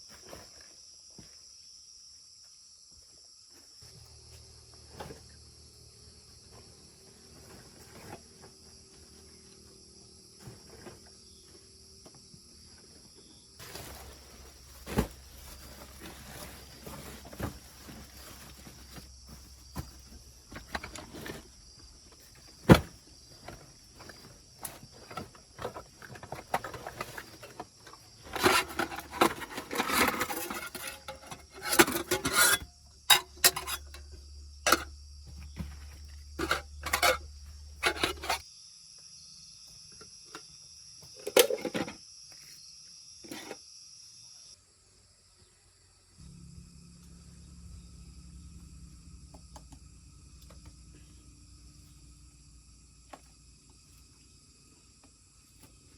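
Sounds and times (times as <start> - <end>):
insects trilling: 0.0 - 55.9
knocks and clatter of handling: 13.6 - 38.4, 41.0 - 42.0.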